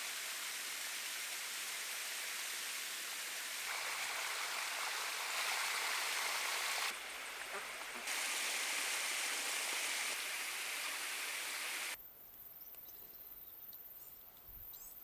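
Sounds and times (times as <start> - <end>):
running water rushing: 0.0 - 12.0
faint high chirps: 10.8 - 15.0.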